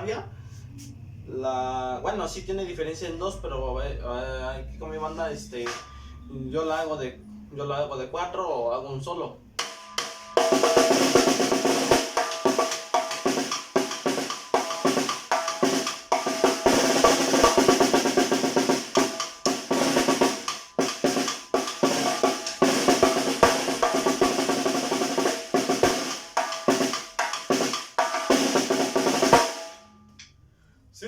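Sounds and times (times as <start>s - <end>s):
snare drum strokes and rolls: 9.6s - 29.8s.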